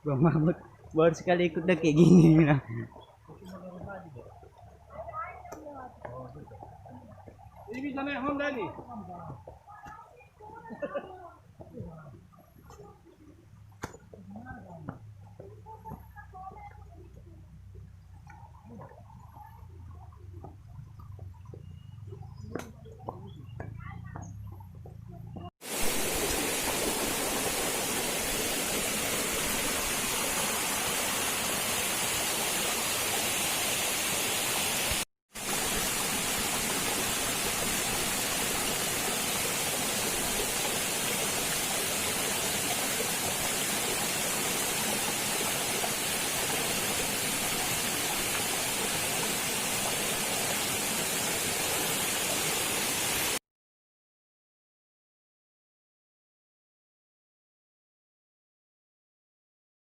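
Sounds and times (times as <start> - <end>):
waterfall rushing: 25.6 - 53.4.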